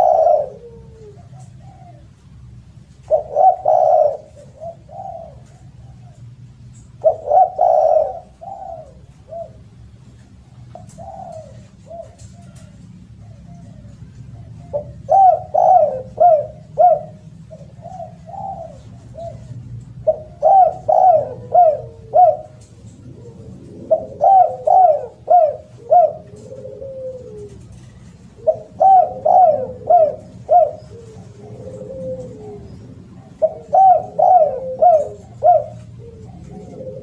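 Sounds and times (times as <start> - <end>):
dove cooing: 0.0 - 37.0
steady low hum: 0.0 - 37.0.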